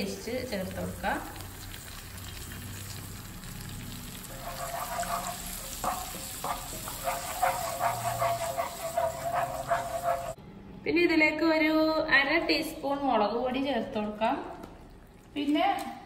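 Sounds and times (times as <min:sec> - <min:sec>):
food sizzling in hot oil: 0:00.1 - 0:10.4
spatula scraping a pan: 0:04.2 - 0:10.4.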